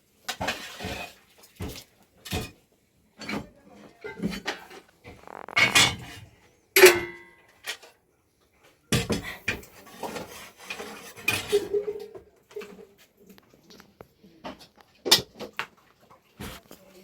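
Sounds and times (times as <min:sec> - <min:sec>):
metal pots clattering and scraping: 0:00.3 - 0:08.0, 0:08.9 - 0:13.5.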